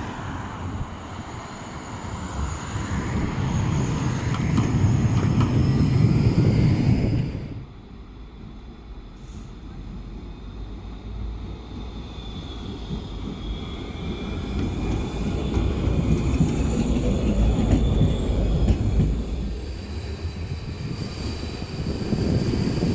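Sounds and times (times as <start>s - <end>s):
tram rumbling on rails: 0.0s - 22.9s.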